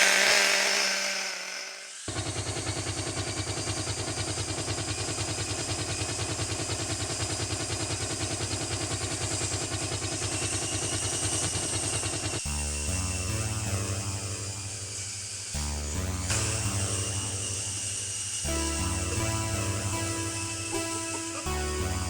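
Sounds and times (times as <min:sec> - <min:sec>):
rotor blades chopping: 0:00.0 - 0:07.9
rc helicopter motor whine: 0:00.0 - 0:22.0.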